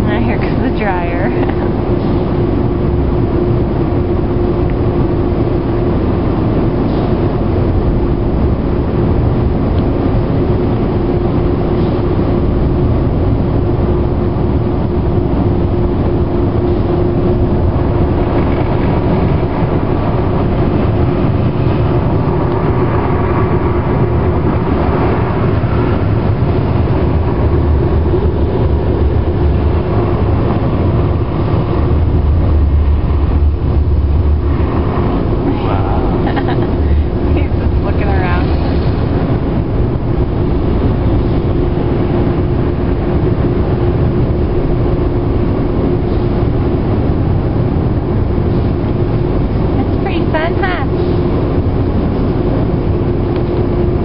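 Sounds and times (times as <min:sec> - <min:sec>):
air dryer blowers rushing: 0:34.5 - 0:39.6.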